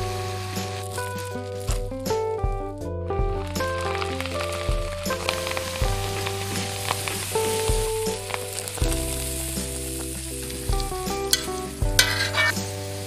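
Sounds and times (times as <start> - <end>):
beef sizzling in a wok: 0.0 - 2.2, 3.4 - 13.0
background music with bass: 0.0 - 13.0
spatula stirring: 11.3 - 12.6.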